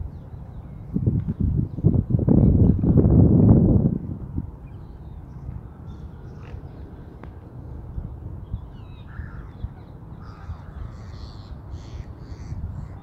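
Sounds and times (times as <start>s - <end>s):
birds giving harsh caw-like calls: 9.0s - 13.0s.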